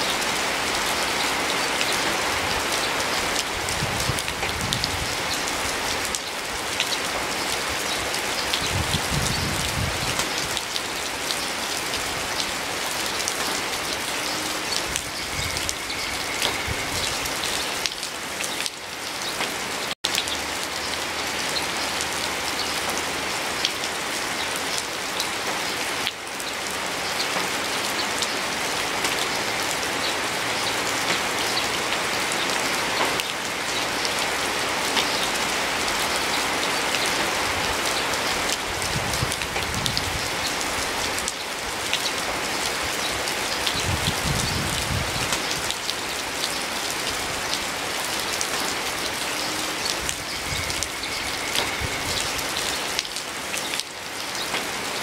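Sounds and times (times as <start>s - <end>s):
rain falling on leafy plants: 0.0s - 55.0s.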